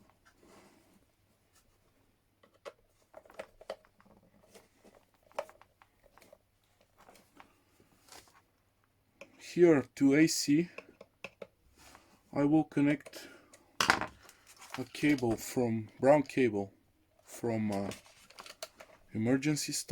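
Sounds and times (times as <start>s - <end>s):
clicks and taps of cable work: 2.4s - 7.5s, 10.7s - 11.6s, 17.7s - 19.0s.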